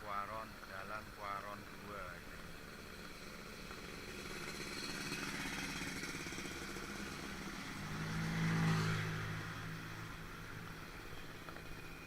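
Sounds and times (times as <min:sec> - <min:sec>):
vehicle passing on street: 0:00.0 - 0:12.0.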